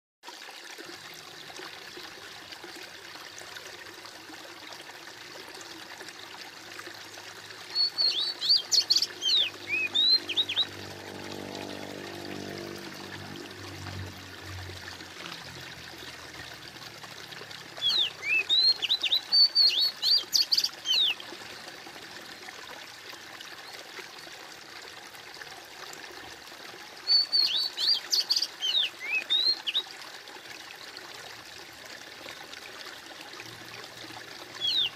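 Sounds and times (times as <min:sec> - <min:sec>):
aquarium water trickling: 0:00.3 - 0:34.9
songbird chirping: 0:07.7 - 0:11.1, 0:17.8 - 0:21.3, 0:34.6 - 0:34.9.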